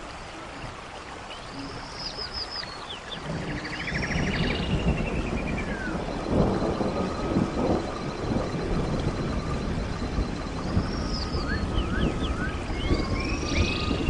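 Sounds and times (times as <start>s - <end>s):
steady low rumble: 3.2s - 14.0s
bird chirps: 10.7s - 14.0s.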